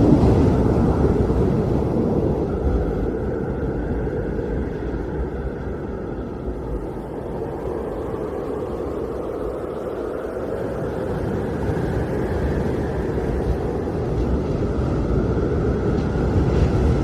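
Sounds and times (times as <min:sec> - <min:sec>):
wind blowing hard: 0:00.0 - 0:17.0.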